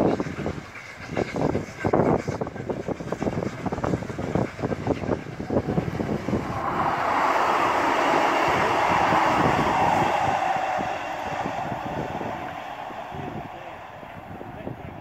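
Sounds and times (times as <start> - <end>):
steam locomotive exhaust beats: 0.0 - 15.0
diesel train passing: 4.8 - 15.0.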